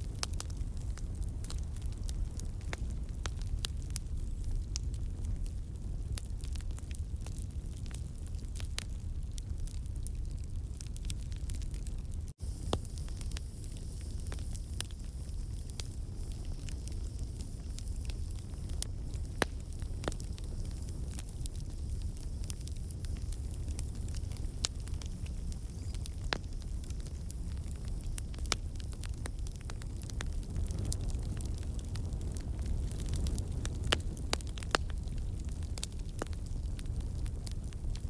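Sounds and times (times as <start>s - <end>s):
logs crackling and popping: 0.0s - 38.0s
low rumble of campfire flame: 0.0s - 38.0s.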